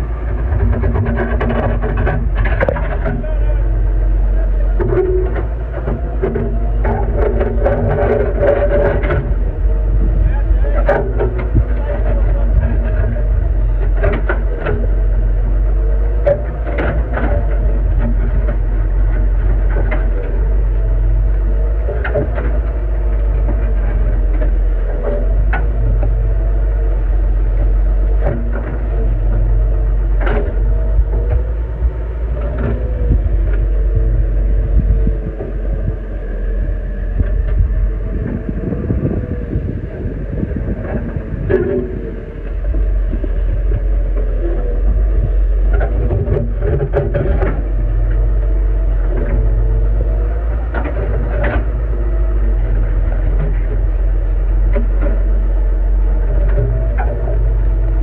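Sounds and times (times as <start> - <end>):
knocks and scrapes: 0.0 - 3.4
excavator diesel engine running: 0.0 - 58.0.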